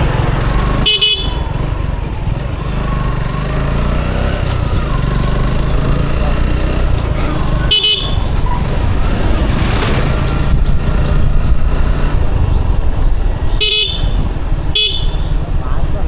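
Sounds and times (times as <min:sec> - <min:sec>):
motorcycle engine and road rumble: 0:00.0 - 0:16.0
horn beeps: 0:00.8 - 0:01.6, 0:07.6 - 0:08.8, 0:13.4 - 0:15.6.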